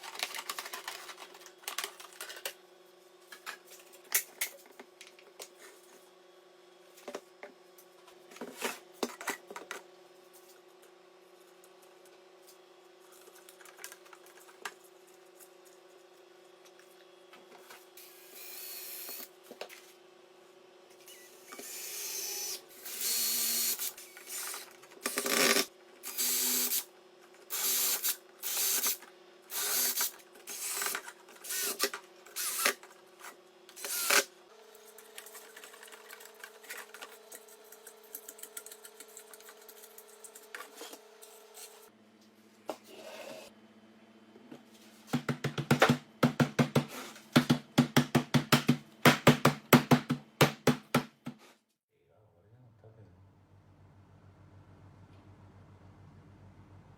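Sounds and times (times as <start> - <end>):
power tool motor hum: 18.0 - 19.3, 21.0 - 26.9, 27.5 - 32.8, 33.8 - 34.3.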